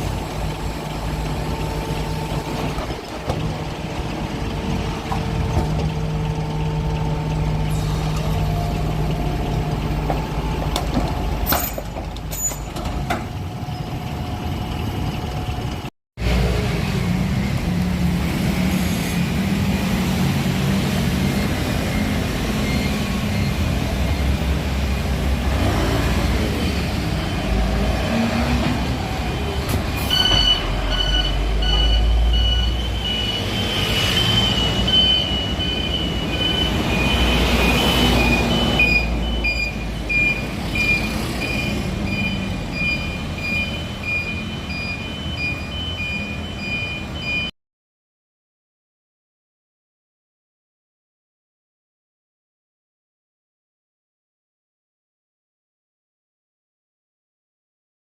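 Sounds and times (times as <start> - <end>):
garbage truck diesel engine: 0.0 - 47.5
high electronic beeping: 30.1 - 47.5.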